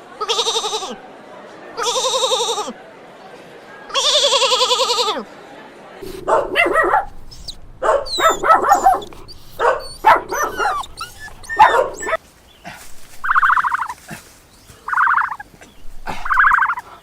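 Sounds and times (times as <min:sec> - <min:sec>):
pulsed trilling calls: 0:06.0 - 0:12.2, 0:13.2 - 0:14.0, 0:14.8 - 0:16.9
short pitched animal calls: 0:13.2 - 0:14.0, 0:14.9 - 0:16.9.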